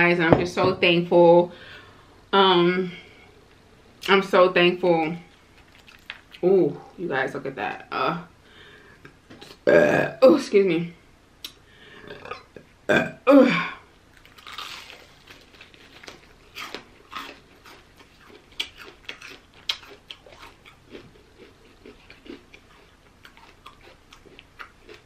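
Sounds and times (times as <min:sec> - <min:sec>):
crunchy chewing and smacks: 0:05.5 - 0:06.4, 0:14.1 - 0:25.0.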